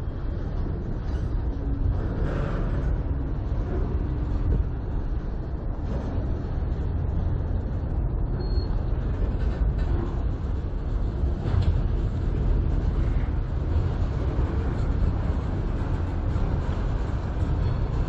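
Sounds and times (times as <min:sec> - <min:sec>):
steel wheels rumbling on rails: 0:00.0 - 0:18.0.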